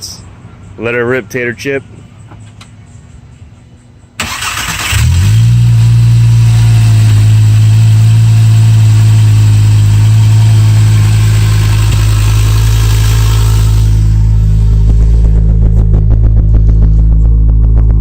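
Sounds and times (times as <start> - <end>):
starter motor cranking: 4.2 - 5.4
car engine idling loudly: 5.0 - 18.0.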